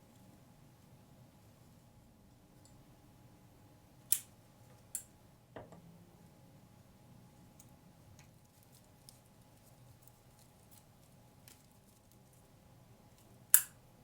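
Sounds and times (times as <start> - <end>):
dried flowers ticking: 7.5 - 12.5
scissors snipping stem: 13.5 - 13.7.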